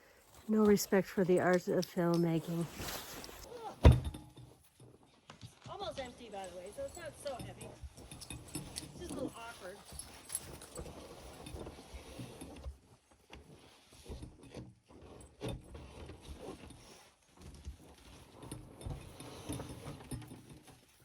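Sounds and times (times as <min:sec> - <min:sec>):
footsteps crunching in snow: 0:00.1 - 0:03.6
freezer scraping and knocking: 0:02.3 - 0:21.0.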